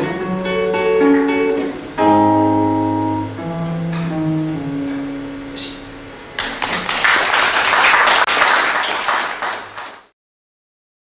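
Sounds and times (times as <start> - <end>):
acoustic guitar chord ringing: 0.0 - 6.2
audience applause: 6.4 - 10.1.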